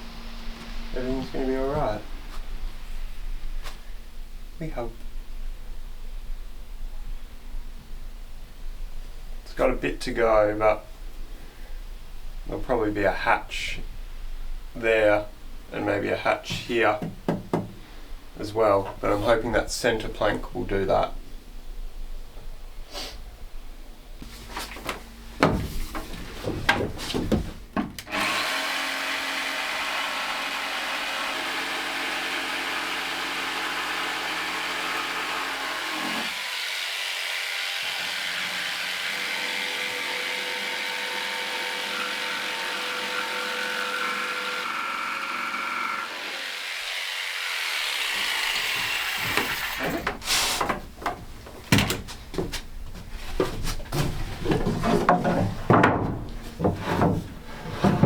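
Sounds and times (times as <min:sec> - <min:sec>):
wooden knocks and clatter: 0:16.6 - 0:17.8, 0:24.6 - 0:28.1, 0:48.8 - 0:58.0
power tool running on wood: 0:28.1 - 0:49.9.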